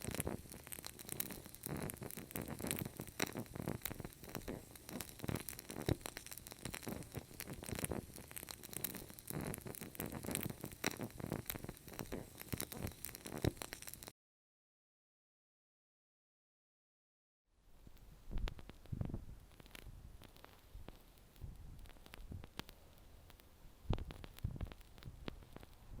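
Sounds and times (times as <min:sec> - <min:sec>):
fire crackling with pops: 0:00.0 - 0:14.1, 0:17.8 - 0:26.0
flames hissing: 0:00.0 - 0:14.1.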